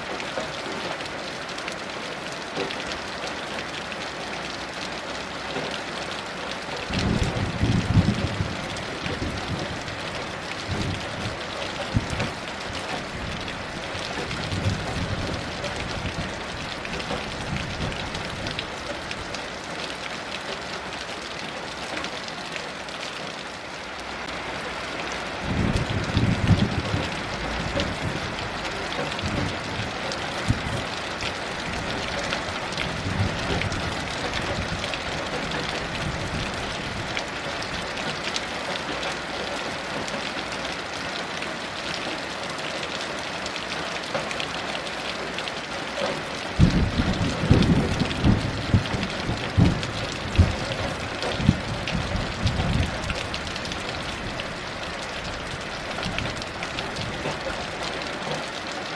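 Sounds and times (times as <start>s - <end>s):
heavy rain falling: 0.0s - 58.9s
distant thunder rumbling: 6.9s - 18.7s, 25.4s - 37.1s, 46.6s - 54.7s.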